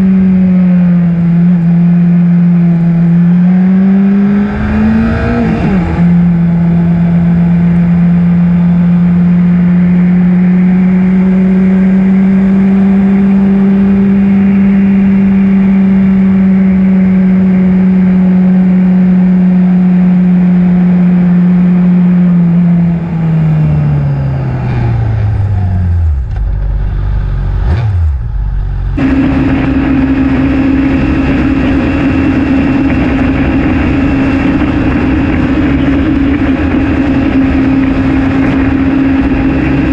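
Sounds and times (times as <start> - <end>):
motorcycle engine running: 0.0 - 39.9
ride noise: 22.6 - 39.9.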